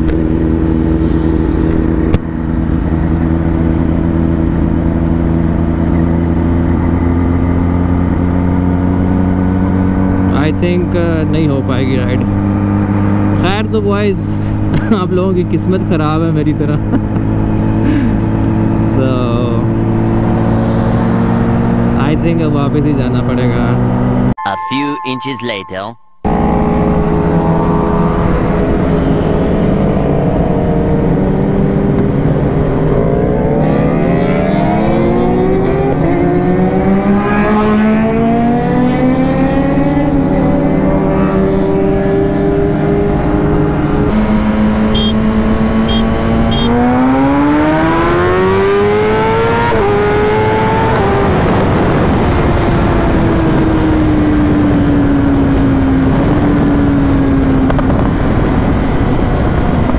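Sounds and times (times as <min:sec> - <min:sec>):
motorcycle engine accelerating: 0:00.0 - 0:24.4, 0:26.2 - 0:59.9
wind noise: 0:40.8 - 0:59.9.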